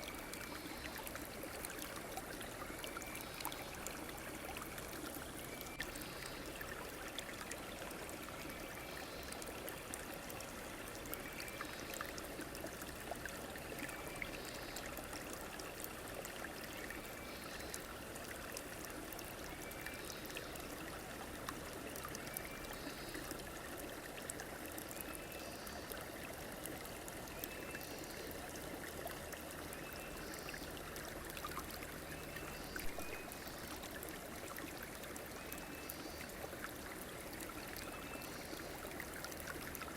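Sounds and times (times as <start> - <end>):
river flowing: 27.9 - 39.9.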